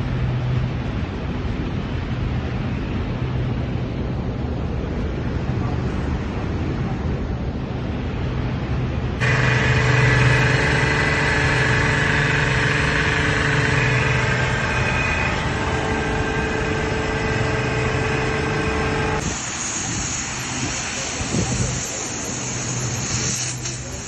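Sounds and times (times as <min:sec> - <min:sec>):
high hiss: 0:09.2 - 0:24.0
pressure washer running: 0:09.2 - 0:24.0.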